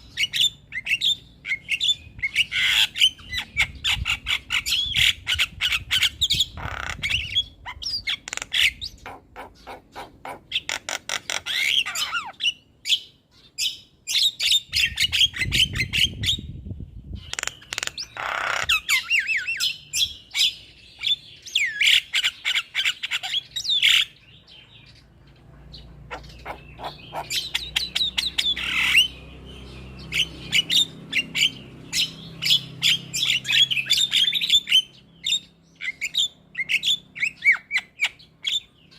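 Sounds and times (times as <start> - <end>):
birds chattering and squawking: 0.0 - 38.9.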